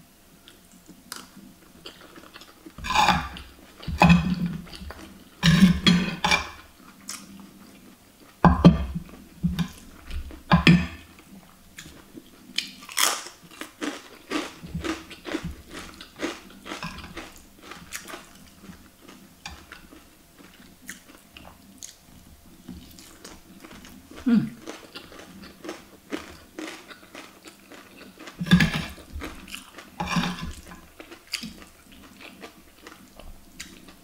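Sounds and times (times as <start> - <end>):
person chewing: 0.4 - 22.0, 22.6 - 34.0
cracker crunching: 11.8 - 21.2, 22.8 - 33.9.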